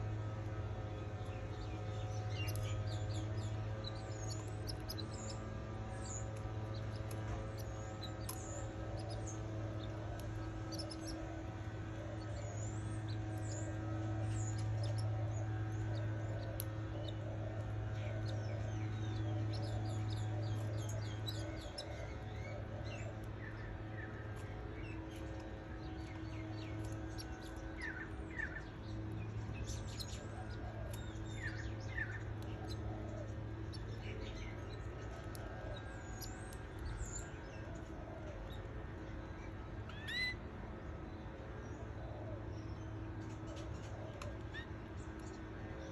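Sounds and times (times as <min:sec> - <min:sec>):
steady low hum: 0:00.0 - 0:45.9
canaries chirping: 0:01.3 - 0:35.3.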